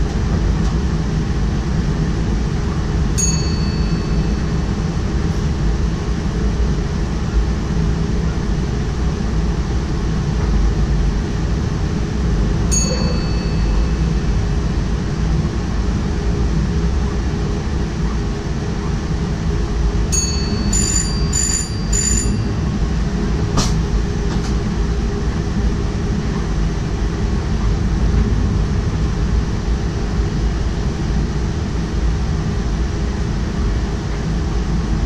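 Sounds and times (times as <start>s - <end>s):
train rumbling along track: 0.0s - 35.0s
high bell ding: 3.2s - 4.7s, 12.7s - 14.2s, 20.1s - 22.8s.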